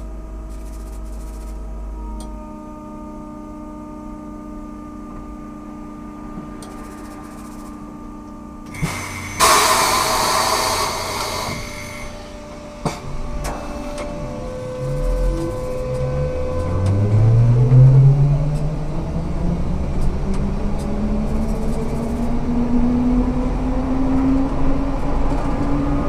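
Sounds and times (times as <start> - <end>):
trolleybus electric whine: 0.0 - 26.0
loud hiss: 8.7 - 12.3.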